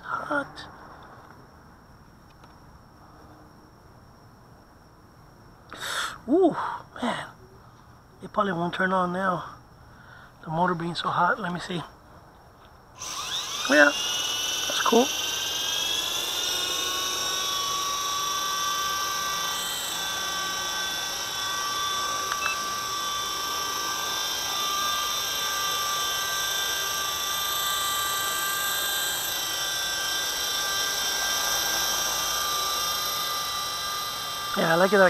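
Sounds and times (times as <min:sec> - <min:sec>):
toy helicopter motor whining: 0:13.0 - 0:35.0.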